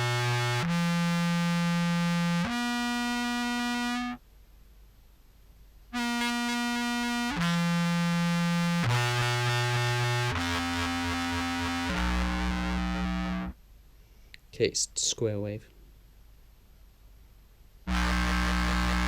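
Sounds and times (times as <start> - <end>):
buzzy fuzz clarinet notes: 0.0 - 4.2, 6.0 - 13.6, 17.9 - 19.0.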